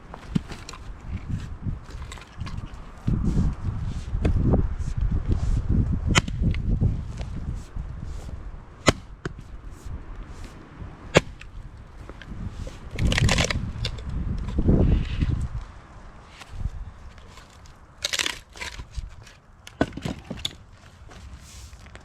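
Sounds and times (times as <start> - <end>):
axe striking firewood: 6.1 - 6.6, 8.8 - 9.4, 11.1 - 11.5, 18.0 - 20.6
wood clattering: 17.1 - 22.0.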